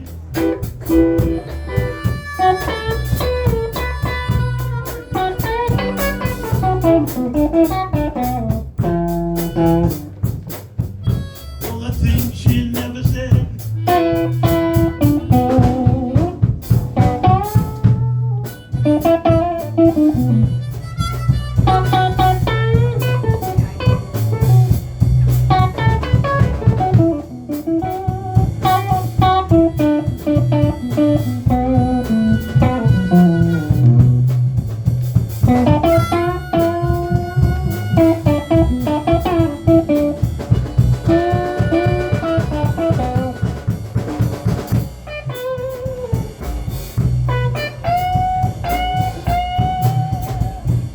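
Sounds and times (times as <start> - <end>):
bass guitar: 0.0 - 50.9
drum kit: 0.0 - 50.9
lead guitar bending notes: 0.0 - 50.9.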